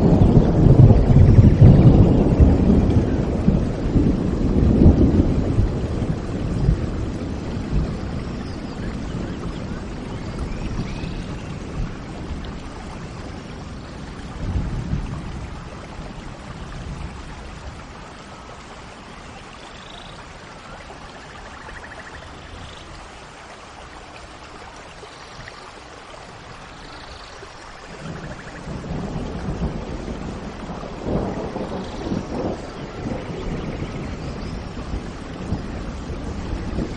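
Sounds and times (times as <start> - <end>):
low rolling thunder: 0.0 - 19.2, 26.2 - 36.9
steady rain: 0.0 - 36.9
faint bird chirps: 19.4 - 20.2.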